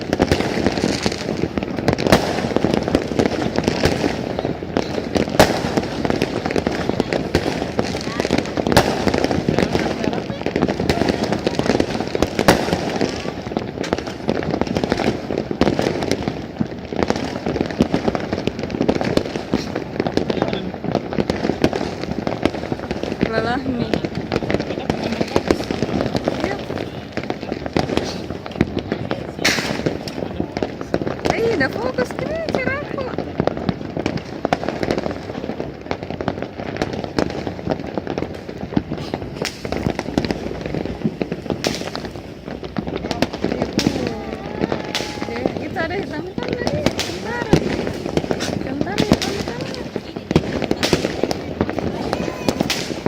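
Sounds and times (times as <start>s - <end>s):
fireworks crackling and banging: 0.0s - 53.0s.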